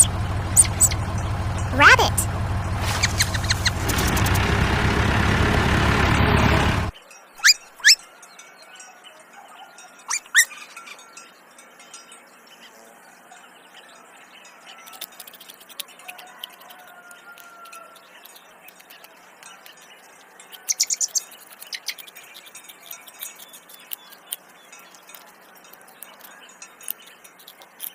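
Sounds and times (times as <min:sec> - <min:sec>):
small birds chirping: 0:00.0 - 0:04.4, 0:06.9 - 0:27.9
loud steady noise: 0:00.0 - 0:06.9.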